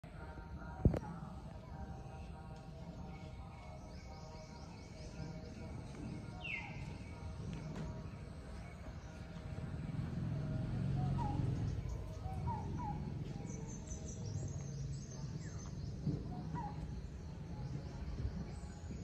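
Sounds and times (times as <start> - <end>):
birds chirping: 0.0 - 19.0
faint music: 0.0 - 19.0.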